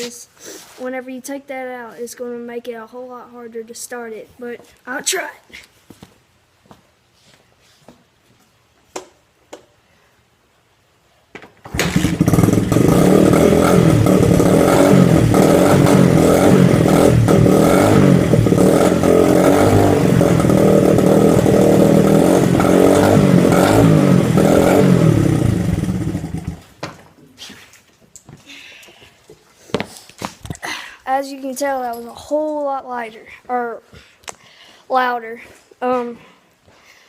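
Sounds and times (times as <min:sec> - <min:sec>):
dirt bike engine revving: 0:11.7 - 0:26.7.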